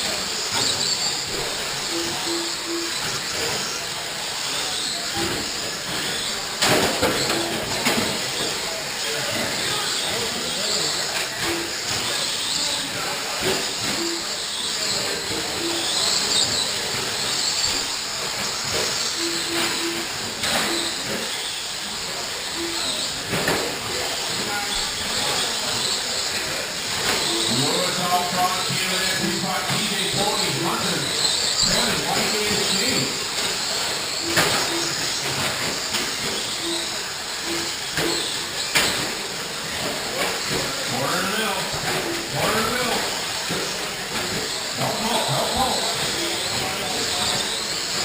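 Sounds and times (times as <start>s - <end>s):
high motor whines: 0.0s - 48.0s
rc truck motors and tyres hissing: 0.0s - 48.0s
short low beeps: 19.2s - 21.2s.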